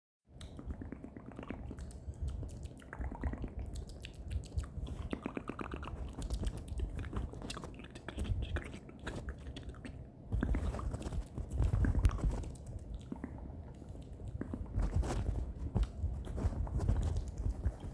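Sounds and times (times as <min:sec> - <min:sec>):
wet mouth clicks and smacks: 0:00.4 - 0:14.6.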